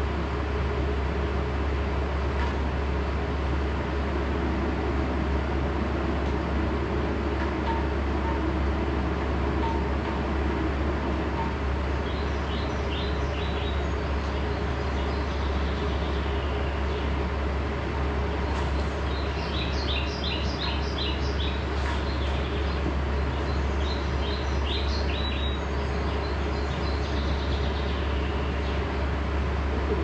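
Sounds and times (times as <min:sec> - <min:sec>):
low hum and hiss: 0:00.0 - 0:30.0
small birds chirping: 0:10.6 - 0:30.0.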